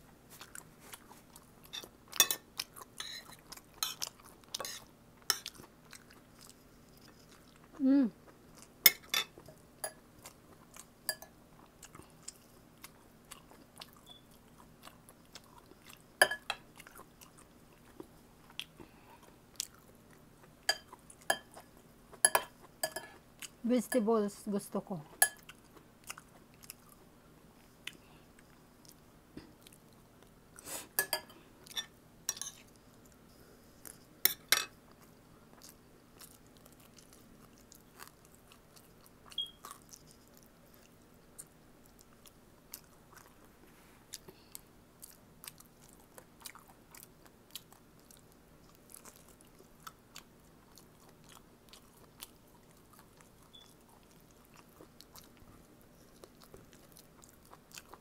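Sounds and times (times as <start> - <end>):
close-miked chewing: 0.2 - 23.6, 25.1 - 30.6, 31.4 - 58.0.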